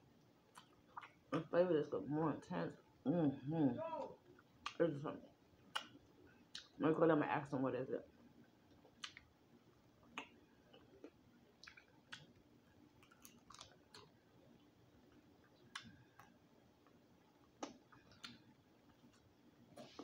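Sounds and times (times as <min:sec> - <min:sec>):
person chewing meat: 0:00.5 - 0:01.3, 0:10.0 - 0:14.2, 0:15.0 - 0:20.0.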